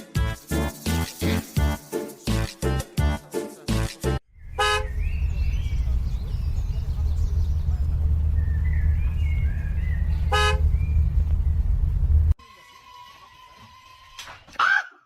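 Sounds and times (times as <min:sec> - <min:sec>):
steady low rumble: 0:04.4 - 0:12.4
car horn honks: 0:04.6 - 0:05.0, 0:10.2 - 0:10.7.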